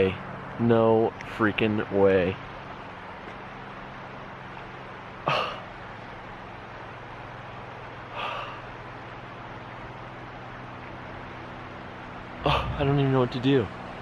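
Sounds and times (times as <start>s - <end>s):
steady low hum: 0.0s - 14.0s
man sighing heavily: 5.3s - 5.7s, 8.2s - 8.6s, 12.4s - 12.8s.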